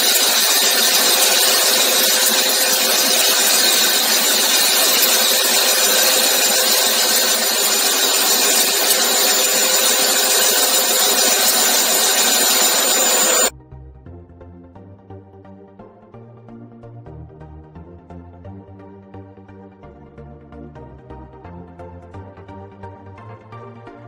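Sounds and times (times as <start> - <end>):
machine cutting metal: 0.0 - 13.5.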